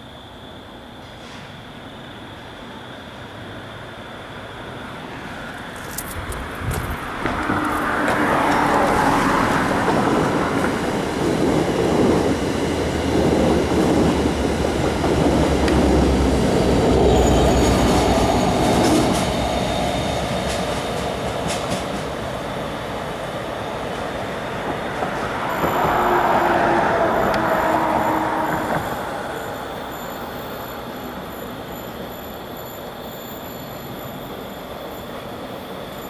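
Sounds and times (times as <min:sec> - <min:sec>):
passenger train rumble: 0:00.0 - 0:36.0
high wheel squeal: 0:16.3 - 0:21.6, 0:23.6 - 0:36.0.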